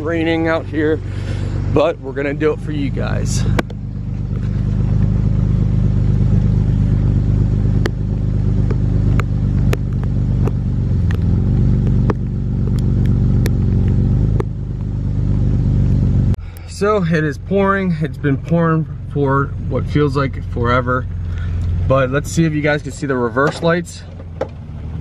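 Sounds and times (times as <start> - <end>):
car engine idling: 0.0 - 25.0
heavy rain striking vehicle: 21.1 - 24.6.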